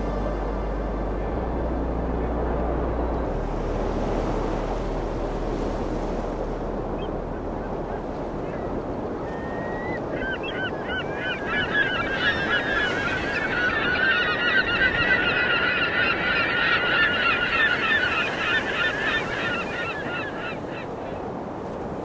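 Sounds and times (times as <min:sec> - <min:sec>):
flock of birds calling: 0:09.3 - 0:21.0.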